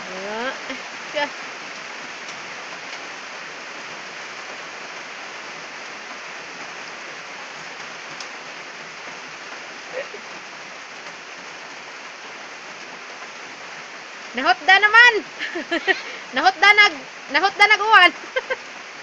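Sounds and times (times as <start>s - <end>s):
steady rain splashing: 0.0s - 19.0s.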